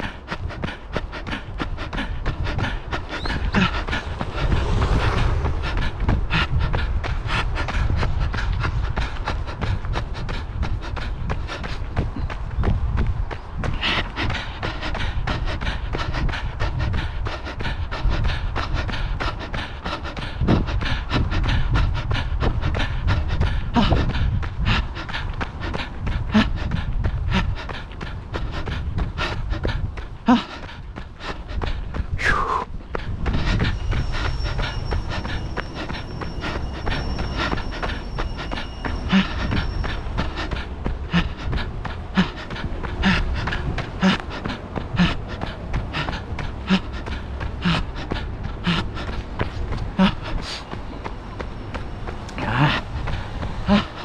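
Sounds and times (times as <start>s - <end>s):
runner panting: 0.0s - 54.0s
running footfalls: 0.0s - 54.0s
train rumbling past: 1.3s - 10.6s, 32.8s - 54.0s
high-pitched ringing tone: 33.7s - 40.0s.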